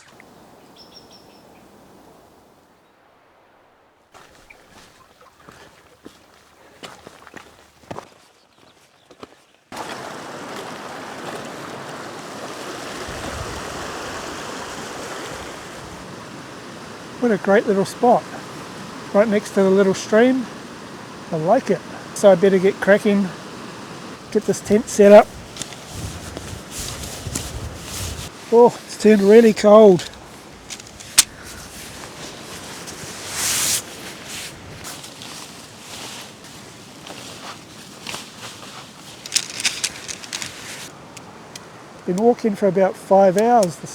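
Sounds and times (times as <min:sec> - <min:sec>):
steady background hiss: 0:00.0 - 0:04.6, 0:12.1 - 0:43.9
stream rushing: 0:00.0 - 0:05.5, 0:09.7 - 0:43.9
camping gear rustling: 0:04.1 - 0:10.5, 0:23.6 - 0:42.4
faint footsteps: 0:25.0 - 0:41.3.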